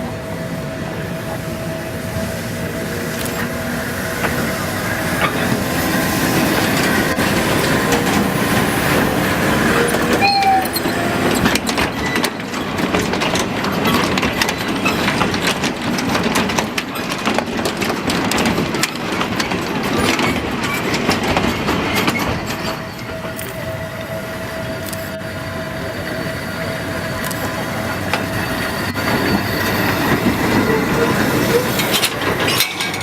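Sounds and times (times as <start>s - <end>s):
electric train running on rails: 0.0s - 33.0s
wheels clicking over rail joints: 3.0s - 25.2s, 27.1s - 33.0s
brief high squeal: 10.1s - 11.2s.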